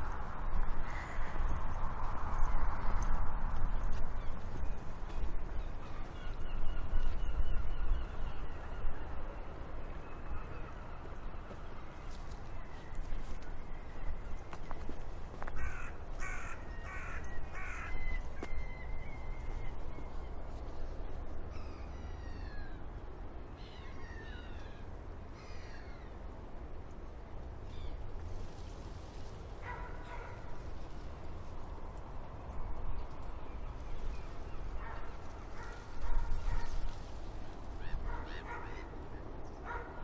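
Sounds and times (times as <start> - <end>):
wind buffeting microphone: 0.0 - 23.6, 26.0 - 40.0
crow cawing: 15.6 - 18.2.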